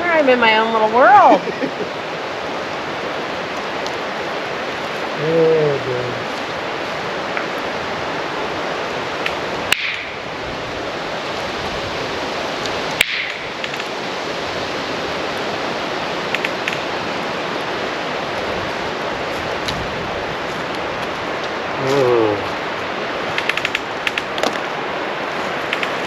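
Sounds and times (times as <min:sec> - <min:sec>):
campfire hissing: 0:00.0 - 0:26.0
campfire pops: 0:09.2 - 0:10.2, 0:12.6 - 0:14.0, 0:23.3 - 0:24.7.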